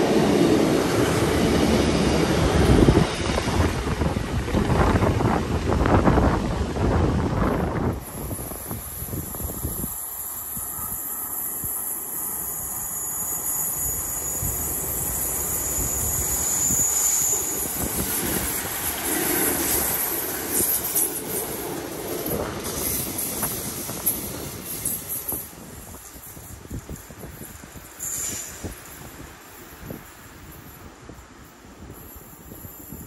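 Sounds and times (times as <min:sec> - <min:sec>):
train running past: 0:00.0 - 0:33.0
wind buffeting microphone: 0:00.1 - 0:11.0, 0:14.4 - 0:33.0
thin high whine: 0:08.0 - 0:21.0.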